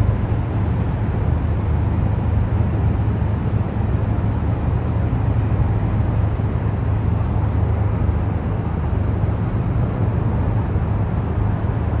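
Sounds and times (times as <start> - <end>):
distant city traffic rumble: 0.0 - 12.0.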